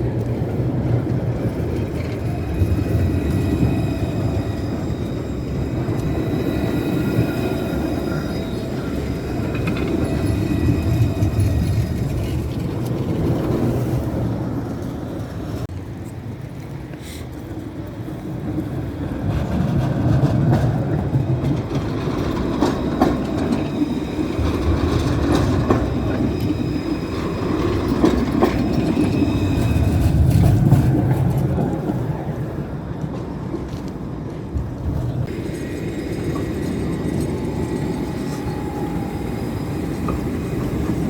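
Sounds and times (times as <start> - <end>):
tram rumbling on rails: 0.0 - 41.0
wheels clicking over track: 0.1 - 15.7, 19.2 - 32.0.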